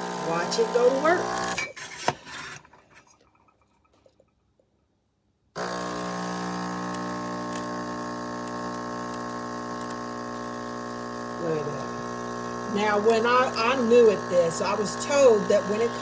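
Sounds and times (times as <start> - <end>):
espresso machine pump humming: 0.0 - 1.6, 5.6 - 16.0.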